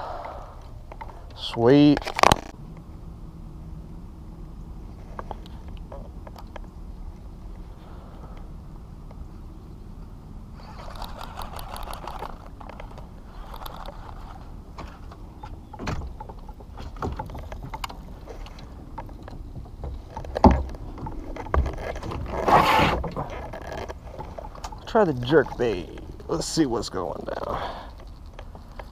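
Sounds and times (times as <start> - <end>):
scraping rustle: 10.5 - 28.9.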